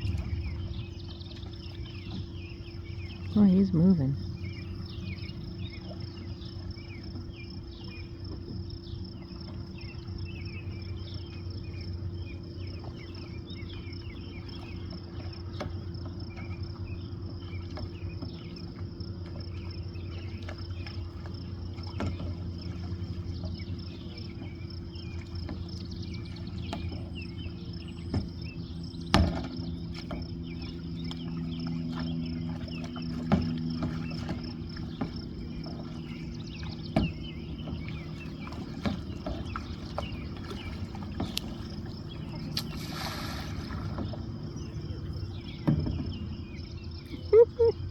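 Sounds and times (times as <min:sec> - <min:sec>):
insects droning: 0:00.0 - 0:47.9
low steady hum: 0:00.0 - 0:47.9
short insect chirps: 0:40.1 - 0:45.6.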